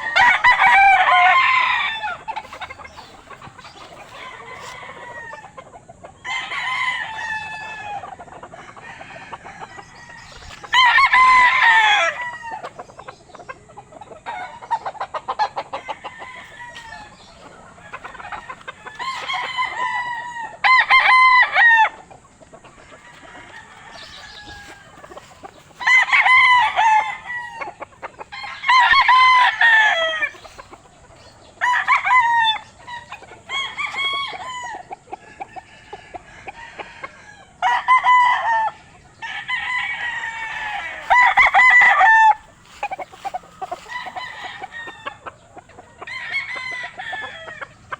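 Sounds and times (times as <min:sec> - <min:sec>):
rooster crowing: 0:00.0 - 0:05.6, 0:06.2 - 0:12.8, 0:15.6 - 0:22.1, 0:22.8 - 0:45.4, 0:46.0 - 0:47.9
soft clucking: 0:40.4 - 0:46.1.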